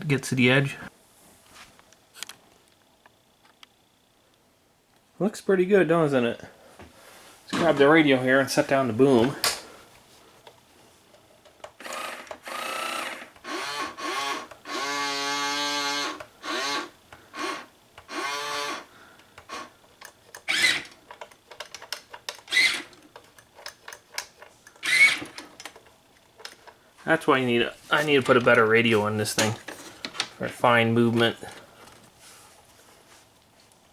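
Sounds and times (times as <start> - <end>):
small electric motors whining: 11.7 - 21.1, 22.5 - 23.0, 24.7 - 25.6.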